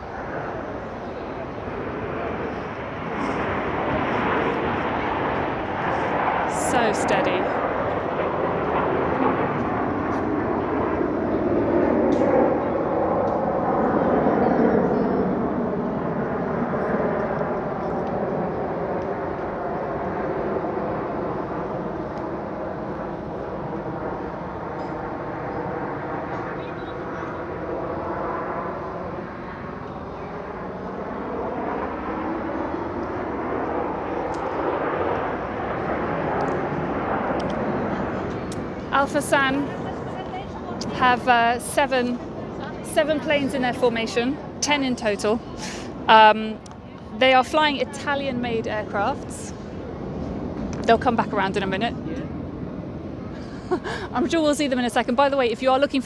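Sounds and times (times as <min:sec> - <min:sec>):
jet engines flying past: 0:00.0 - 0:56.0.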